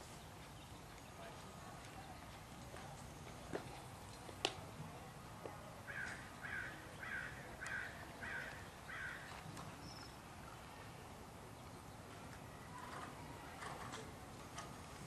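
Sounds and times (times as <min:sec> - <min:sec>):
bird harsh calls: 0:05.9 - 0:09.3.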